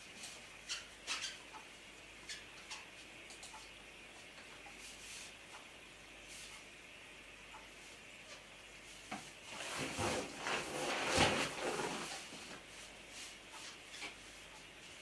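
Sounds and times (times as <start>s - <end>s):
rubbing and rustling on rubber balloon: 9.4s - 13.4s.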